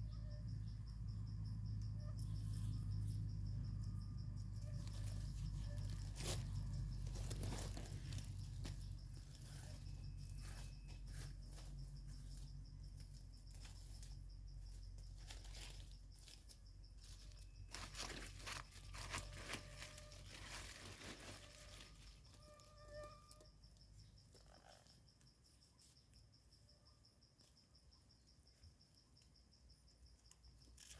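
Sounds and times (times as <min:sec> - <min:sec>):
high insect tone: 0:00.0 - 0:30.9
rustling of leaf litter: 0:04.8 - 0:12.4, 0:15.1 - 0:22.9.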